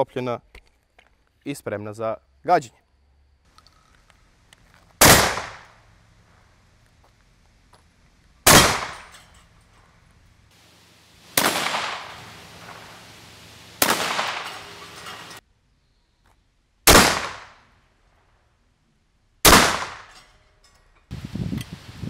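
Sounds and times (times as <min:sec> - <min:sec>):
shotgun shots with echo: 0:05.0 - 0:05.8, 0:08.5 - 0:09.2, 0:11.2 - 0:15.4, 0:16.9 - 0:17.6, 0:19.4 - 0:20.1.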